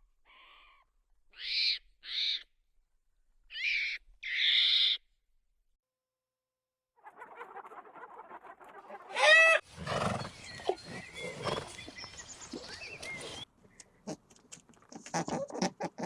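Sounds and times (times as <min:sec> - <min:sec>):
animal calls: 0:07.0 - 0:11.8.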